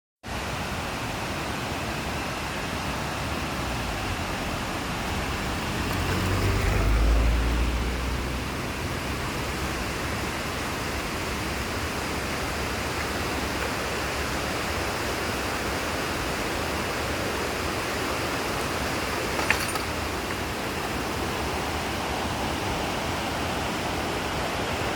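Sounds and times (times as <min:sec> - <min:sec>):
vehicle driving on dirt road: 0:03.1 - 0:22.4.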